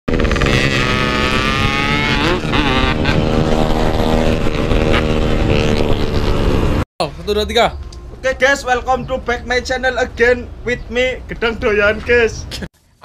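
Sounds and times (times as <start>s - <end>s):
two-stroke motorcycle engine revving: 0.1s - 6.8s.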